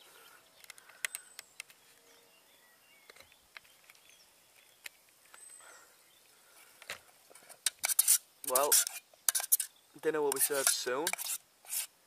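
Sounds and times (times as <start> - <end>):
faint bird chirps: 0.0 - 6.6.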